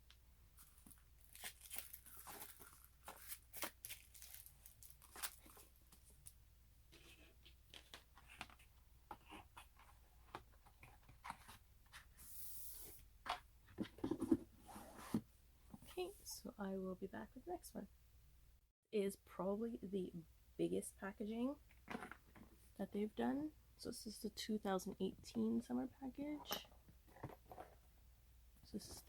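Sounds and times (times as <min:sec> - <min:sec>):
paper and cardboard rustling: 0:00.6 - 0:06.2.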